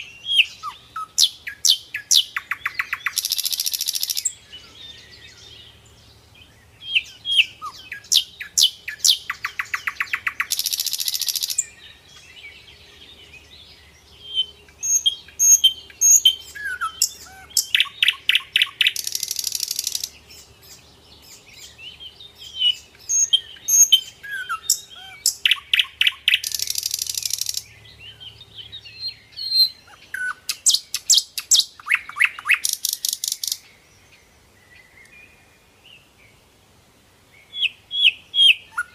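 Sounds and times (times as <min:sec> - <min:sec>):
birds singing and calling: 0:00.0 - 0:36.5, 0:37.2 - 0:38.9.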